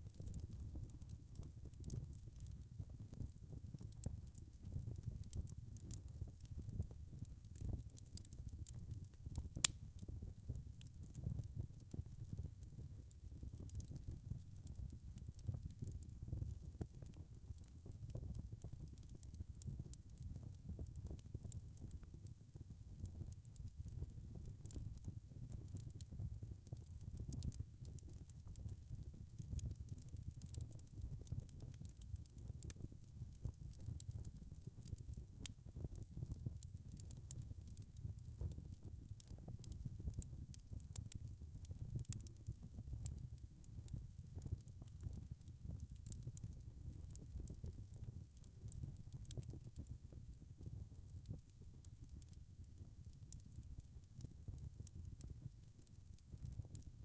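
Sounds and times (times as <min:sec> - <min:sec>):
wood fire crackling: 0:00.1 - 0:56.9.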